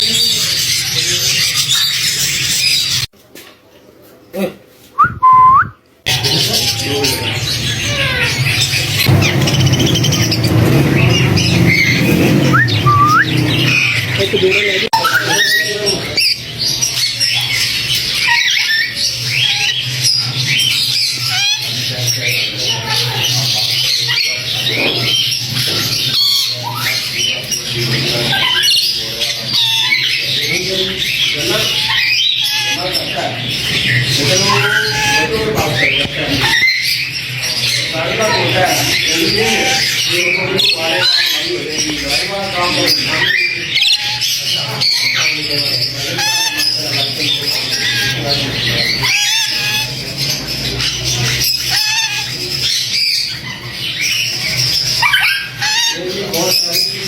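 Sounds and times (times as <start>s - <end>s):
parrots squawking and chattering: 0.0s - 3.1s, 6.0s - 57.0s
dense noisy din: 6.1s - 14.8s
loud whistle: 12.5s - 13.4s.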